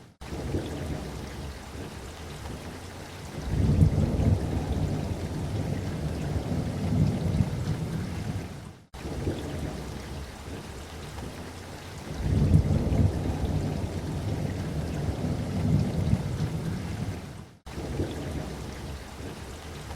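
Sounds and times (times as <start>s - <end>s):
steady rain: 0.0s - 19.9s
rolling thunder: 0.2s - 1.9s, 3.4s - 10.6s, 12.1s - 19.4s.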